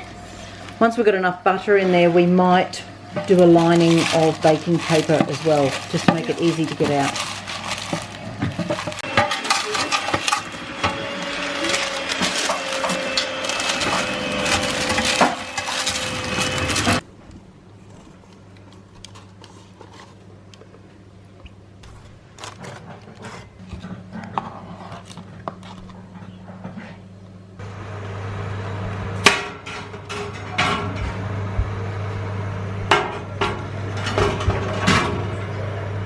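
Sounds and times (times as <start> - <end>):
steady low hum: 0.0 - 36.0
baking pans clinking: 3.2 - 17.0.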